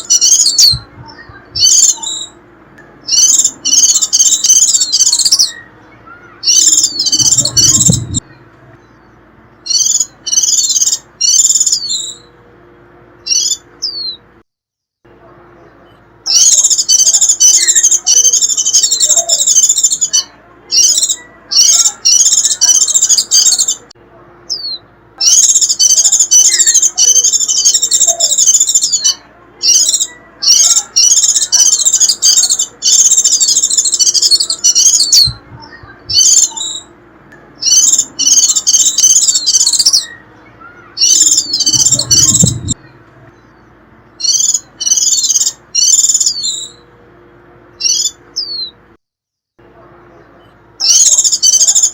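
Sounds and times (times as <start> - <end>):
white-eye twittering song: 0.0 - 12.4, 13.2 - 14.2, 15.5 - 47.0, 47.7 - 48.8, 50.2 - 51.9
low rumble: 6.9 - 8.8, 41.4 - 43.6.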